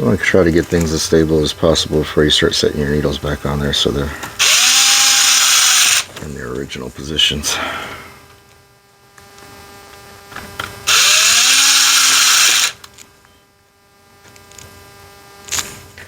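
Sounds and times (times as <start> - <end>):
cordless screwdriver motor whirring: 4.3 - 6.1, 10.8 - 13.0.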